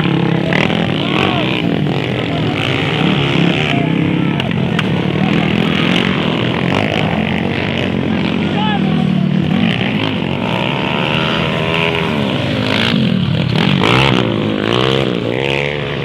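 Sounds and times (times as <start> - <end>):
dirt bike engines racing: 0.0 - 16.0.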